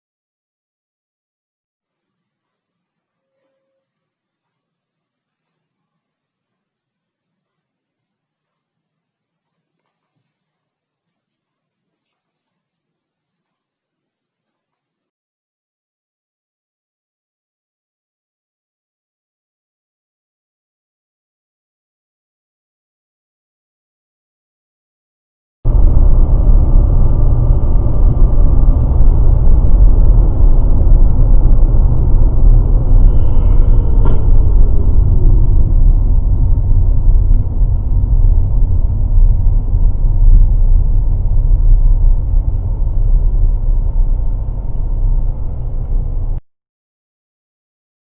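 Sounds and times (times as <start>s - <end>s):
car engine and road noise: 25.7s - 46.4s.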